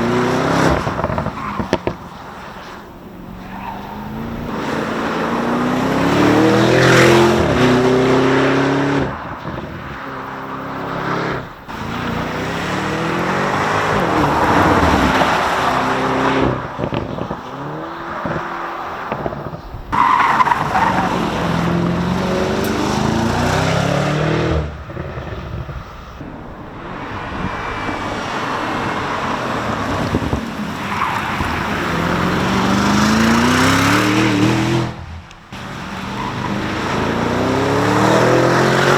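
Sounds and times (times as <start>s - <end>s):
sports car engine accelerating: 10.5s - 38.9s.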